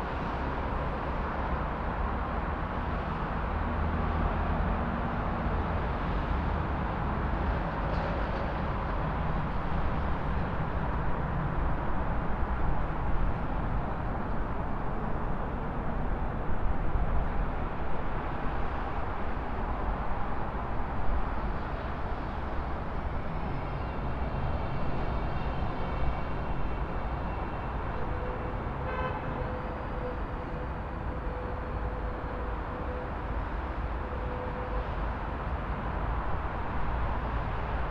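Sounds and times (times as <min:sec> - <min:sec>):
rumble of passing vehicles: 0:00.0 - 0:37.9
car horns: 0:28.8 - 0:29.6.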